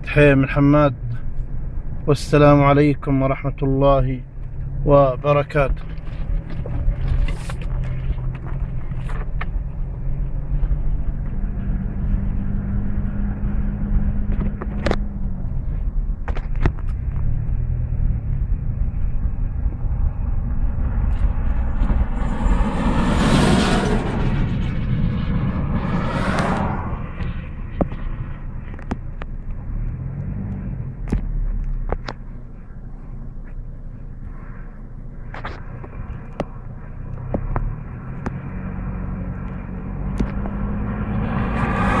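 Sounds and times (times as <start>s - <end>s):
vehicle rumbling on road: 0.0s - 42.0s.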